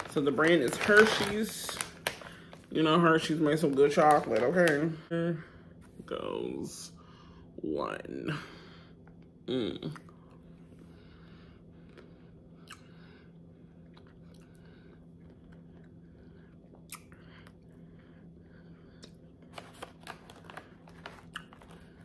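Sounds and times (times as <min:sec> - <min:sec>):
steady low hum: 0:00.0 - 0:22.0
soft chewing crunches: 0:11.8 - 0:18.2, 0:18.9 - 0:22.0.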